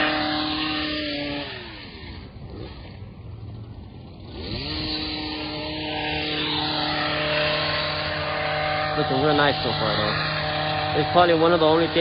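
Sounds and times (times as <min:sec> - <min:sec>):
small gas engine revving: 0:00.0 - 0:12.0.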